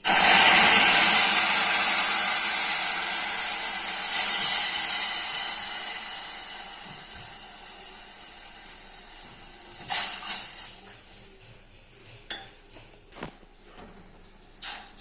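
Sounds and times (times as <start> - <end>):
pot hissing on stove: 0.0 - 10.9, 14.6 - 15.0
sharp clinks: 12.3 - 12.6.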